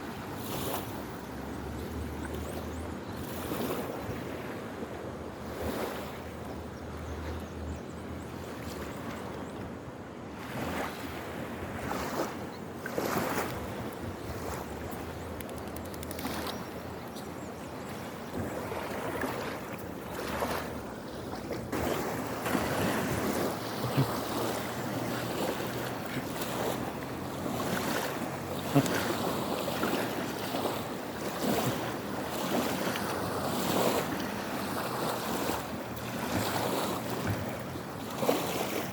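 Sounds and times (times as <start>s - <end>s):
river water rushing: 10.4s - 38.9s.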